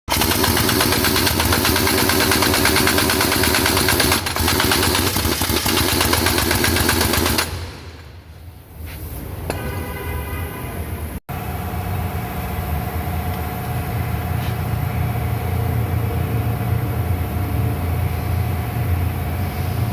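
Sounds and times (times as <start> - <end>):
impact wrench rattling: 0.1 - 7.8
engine hum: 11.3 - 19.9.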